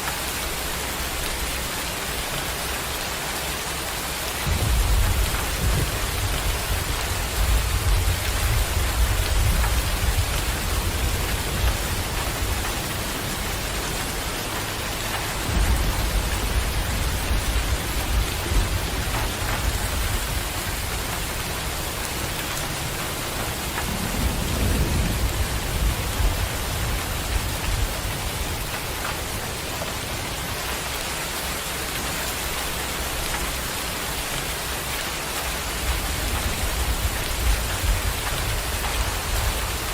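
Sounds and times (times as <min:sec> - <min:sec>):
heavy rain hissing: 0:00.0 - 0:39.9
rolling thunder: 0:04.4 - 0:30.2.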